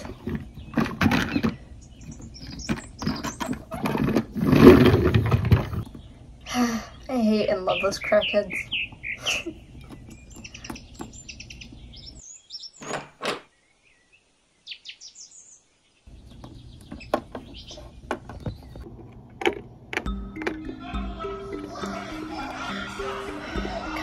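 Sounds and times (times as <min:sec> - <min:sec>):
small birds chirping: 0:00.0 - 0:04.2, 0:05.7 - 0:18.9.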